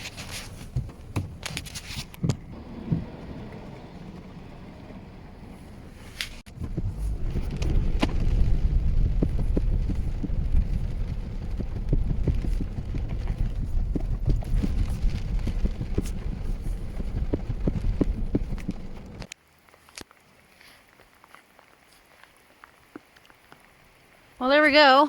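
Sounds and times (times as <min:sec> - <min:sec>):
wind buffeting microphone: 0:00.7 - 0:19.3.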